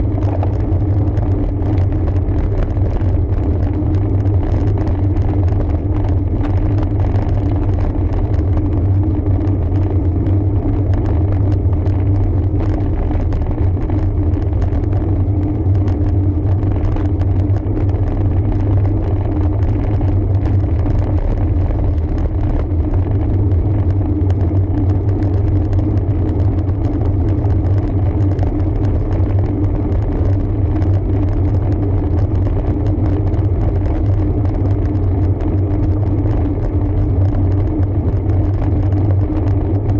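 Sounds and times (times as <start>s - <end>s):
road bike riding rumble: 0.0s - 39.9s.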